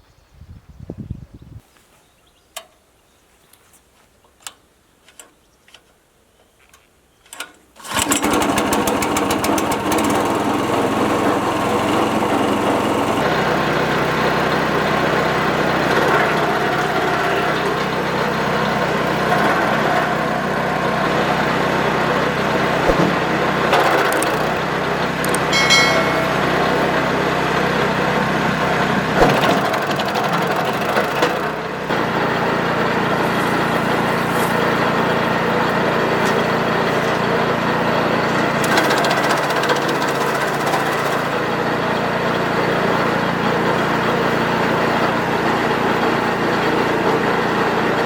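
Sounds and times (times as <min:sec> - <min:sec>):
wood chipper engine running: 0:07.8 - 0:48.0
scattered clicks and knocks: 0:22.9 - 0:24.6, 0:25.2 - 0:27.1.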